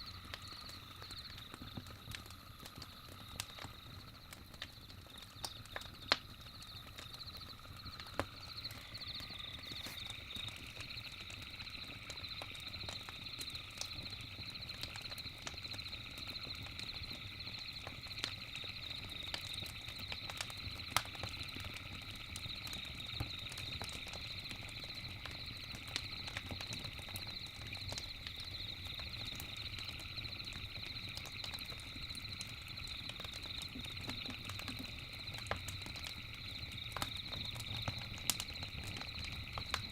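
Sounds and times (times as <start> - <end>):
campfire crackling and popping: 0.0 - 39.9
high chirring of night insects: 0.0 - 39.9
lower insect chirring: 0.0 - 39.9.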